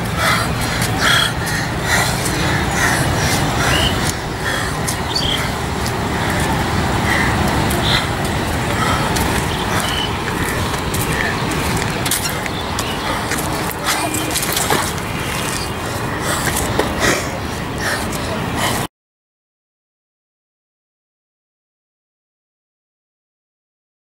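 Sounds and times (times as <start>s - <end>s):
faint calls or voices: 0.0s - 18.9s
road traffic rumble: 0.0s - 18.9s.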